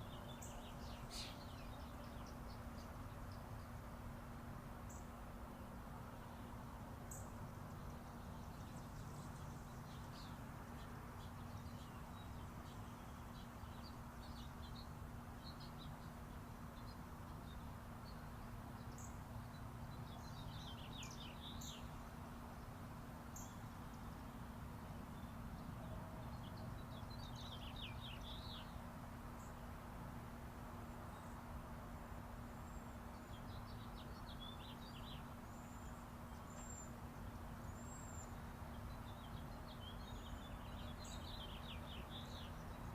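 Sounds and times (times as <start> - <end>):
distant highway traffic rumble: 0.0 - 42.9
birds chirping: 32.6 - 42.9.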